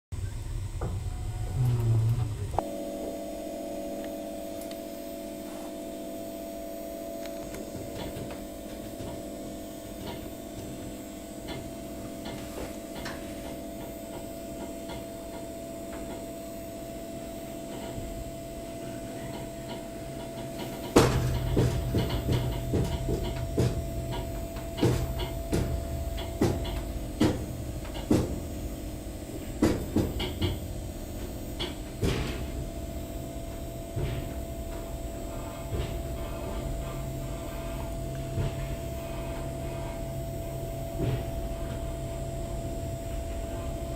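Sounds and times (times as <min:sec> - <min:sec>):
train hum and rumble: 0:00.2 - 0:02.9, 0:06.6 - 0:43.9
sharp clunks and clatters: 0:18.8 - 0:28.6, 0:29.3 - 0:40.0.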